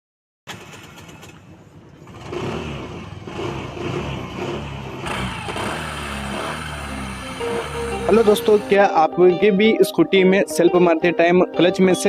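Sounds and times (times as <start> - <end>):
scooter engine running: 0.5 - 8.8
scooter starter cranking: 0.5 - 8.8.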